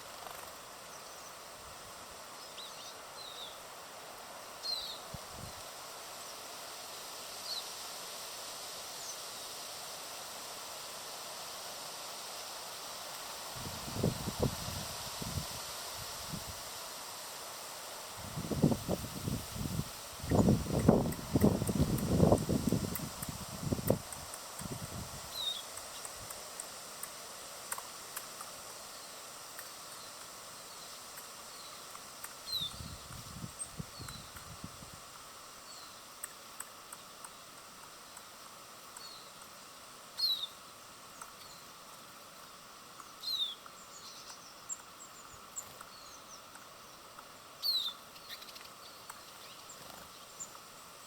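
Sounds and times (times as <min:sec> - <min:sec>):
rustling leaves: 0:00.0 - 0:51.0
steady outdoor hiss: 0:00.0 - 0:51.0
wind: 0:00.0 - 0:51.0
small birds chirping: 0:02.2 - 0:03.8, 0:04.6 - 0:05.2, 0:18.3 - 0:51.0
faint high bird chirps: 0:29.9 - 0:34.4, 0:40.2 - 0:40.6, 0:43.0 - 0:46.5, 0:47.6 - 0:50.6.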